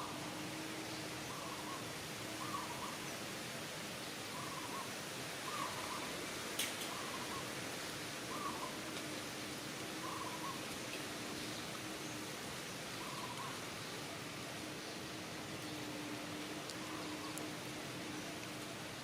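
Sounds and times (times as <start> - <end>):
faint steady hum: 0.0 - 19.0
steady hiss: 0.0 - 19.0
faint animal calls: 4.3 - 6.2, 8.3 - 9.0, 9.9 - 10.7.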